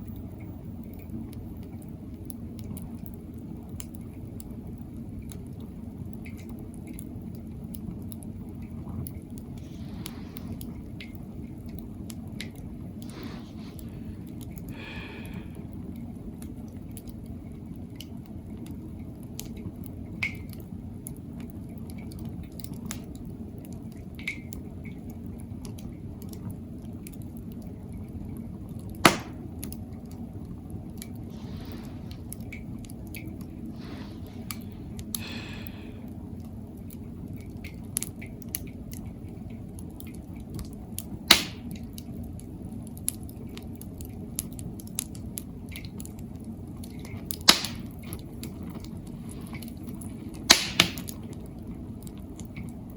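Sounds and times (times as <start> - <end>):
fire crackling and snapping: 0.0 - 52.9
low rumble of flame: 0.0 - 52.9
loud pop: 29.0 - 29.4, 41.3 - 41.7, 47.5 - 47.8, 50.5 - 51.1.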